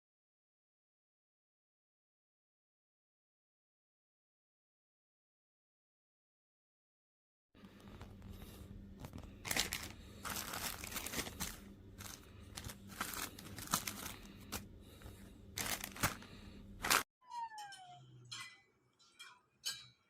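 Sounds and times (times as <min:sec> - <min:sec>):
steady low hum: 0:07.6 - 0:17.0
crinkling handling noise: 0:07.6 - 0:17.1.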